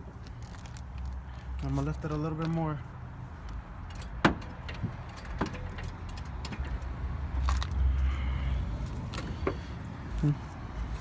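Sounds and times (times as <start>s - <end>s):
jack metallic clicks and knocks: 3.5s - 7.7s.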